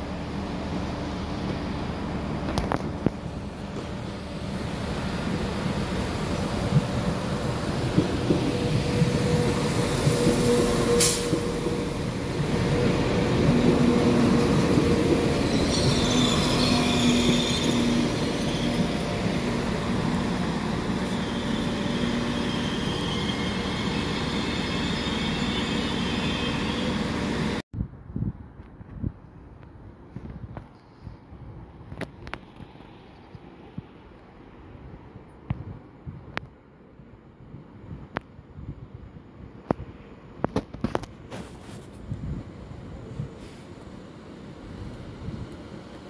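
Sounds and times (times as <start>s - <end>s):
train wheels rumbling on rail: 0.0s - 27.6s
wheels and brakes squealing: 12.7s - 19.8s, 20.4s - 27.6s.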